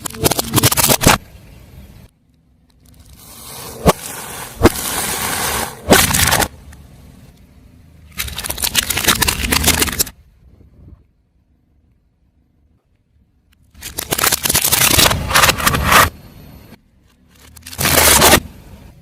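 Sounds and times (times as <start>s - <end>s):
sharp cracks: 0.0s - 1.3s, 3.8s - 6.6s, 8.1s - 10.2s, 13.7s - 16.1s
objects crushed under car tyre: 3.8s - 6.5s, 13.8s - 16.1s, 17.4s - 18.5s.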